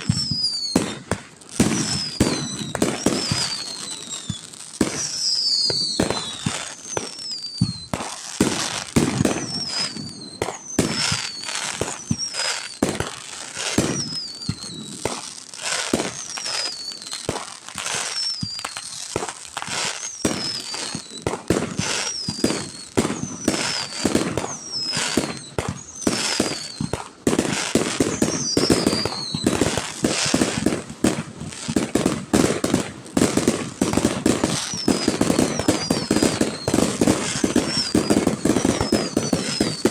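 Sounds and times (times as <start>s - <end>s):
falling firework whistles: 0.0s - 39.9s
fireworks bangs and booms: 0.0s - 39.9s
rapid firework crackling: 0.0s - 39.9s.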